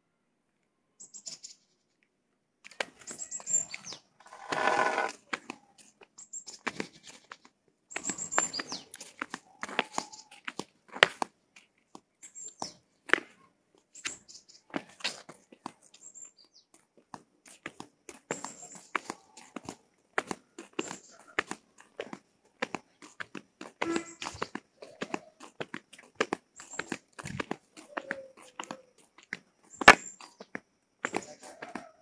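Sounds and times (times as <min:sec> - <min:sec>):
birds chirping: 0:02.9 - 0:10.5, 0:26.6 - 0:32.0.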